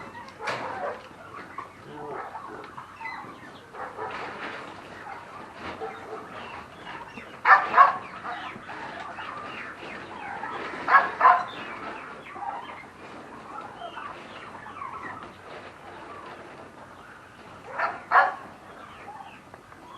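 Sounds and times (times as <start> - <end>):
chickens clucking: 0.0 - 19.9
chicken squawking: 0.1 - 12.8.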